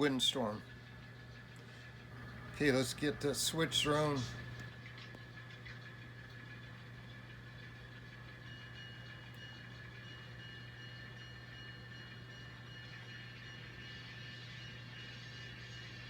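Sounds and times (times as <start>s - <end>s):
thin high whine: 0.0s - 4.8s, 7.0s - 16.0s
faint diesel engine idling: 1.6s - 4.6s.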